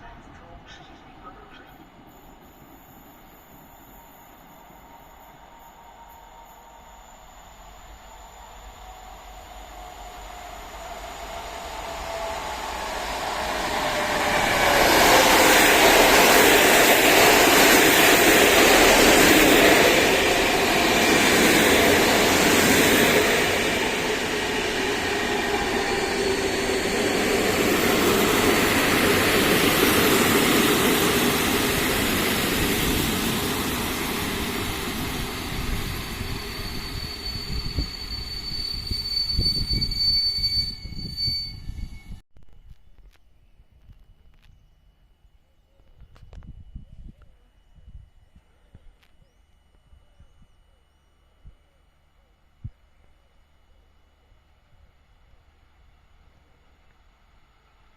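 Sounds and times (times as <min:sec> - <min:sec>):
train running past: 0:00.0 - 0:41.9
thin high whine: 0:00.0 - 0:42.2.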